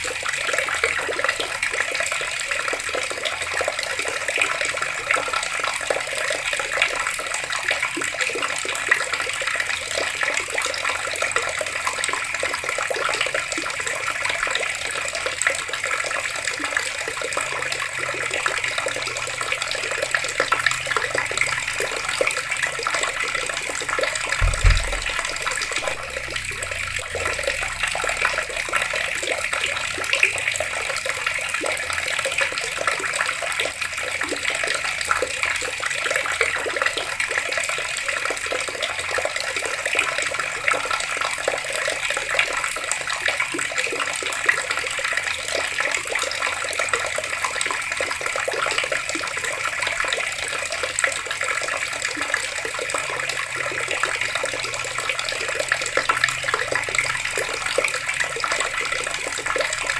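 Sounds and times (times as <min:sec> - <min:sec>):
water running from taps: 0:00.0 - 0:59.9
low thump: 0:24.3 - 0:27.4.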